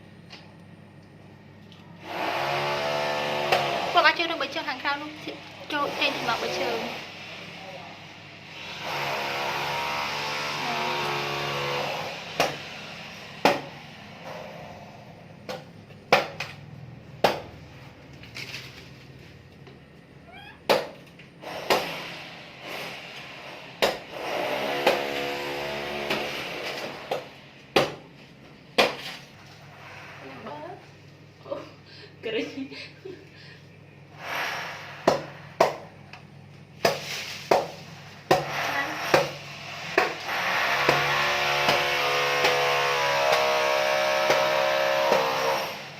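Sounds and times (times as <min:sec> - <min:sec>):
blade chopping coconut: 0:02.7 - 0:03.9, 0:09.9 - 0:12.6, 0:13.4 - 0:13.7, 0:15.5 - 0:16.6, 0:17.2 - 0:17.5, 0:20.7 - 0:21.0, 0:21.6 - 0:22.0, 0:23.8 - 0:25.2, 0:25.8 - 0:28.1, 0:28.8 - 0:29.1, 0:35.0 - 0:35.9, 0:36.8 - 0:39.4, 0:40.0 - 0:45.5.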